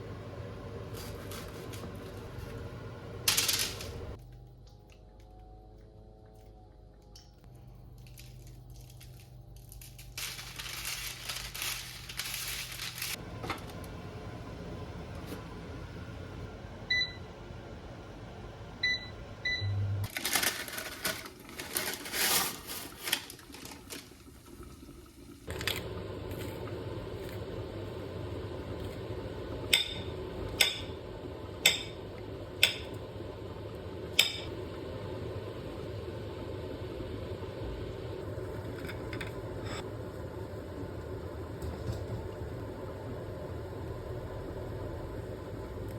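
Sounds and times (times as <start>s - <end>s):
steady hum: 0.0s - 20.6s, 25.5s - 45.9s
electronic appliance beeps: 16.8s - 17.4s, 18.8s - 20.1s.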